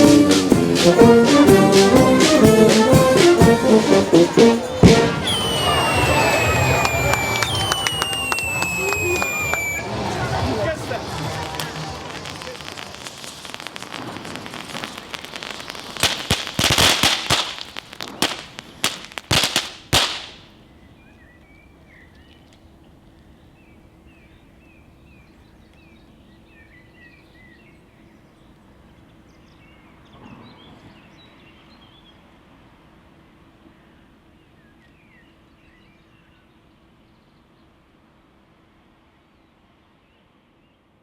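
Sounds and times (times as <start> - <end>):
faint high chirps: 5.2 - 9.9
sharp bangs and crackles: 10.6 - 20.4.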